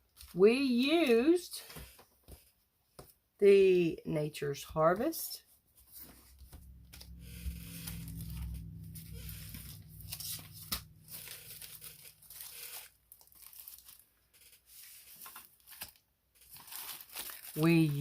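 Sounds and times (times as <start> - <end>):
low steady hum: 6.0 - 12.9
packaging crinkling and rustling: 10.2 - 18.0.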